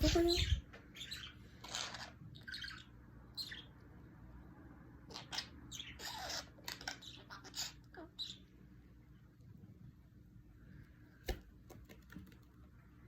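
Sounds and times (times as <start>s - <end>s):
budgerigar chirping: 0.0s - 3.7s, 5.1s - 8.4s.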